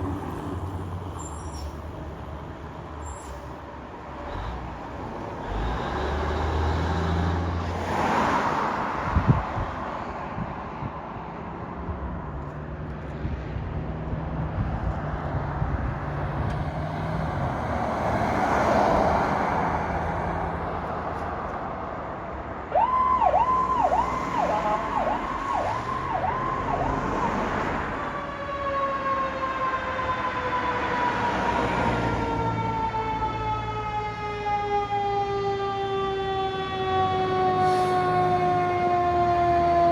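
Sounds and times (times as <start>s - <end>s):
fire engine passing: 0.0s - 12.4s, 13.1s - 39.9s
siren wailing: 22.7s - 39.9s.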